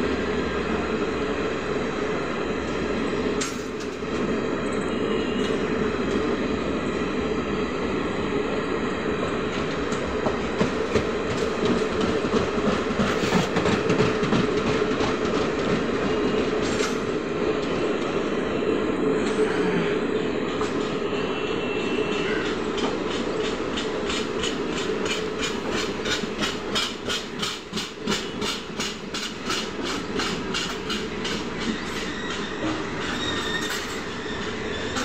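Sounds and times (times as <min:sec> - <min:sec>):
train wheels rumbling on rail: 0:00.0 - 0:35.0
wheels clicking over rail joints: 0:22.4 - 0:35.0.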